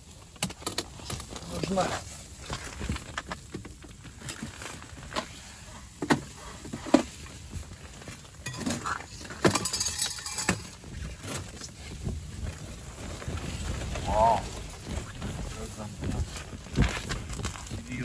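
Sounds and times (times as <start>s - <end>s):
small hard objects clinking: 8.2s - 11.8s.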